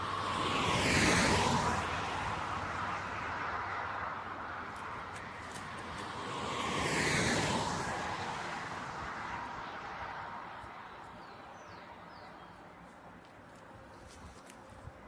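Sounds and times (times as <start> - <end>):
vehicle passing by: 0.0 - 10.5.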